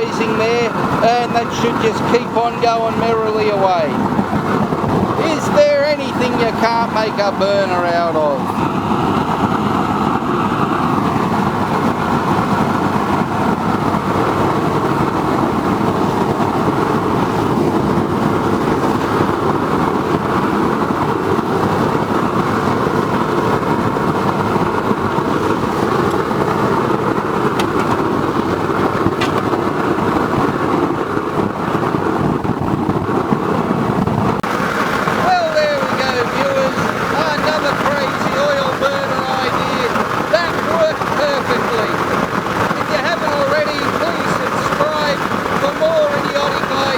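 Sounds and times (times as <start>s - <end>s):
oil burner roaring with blower: 0.0s - 46.9s.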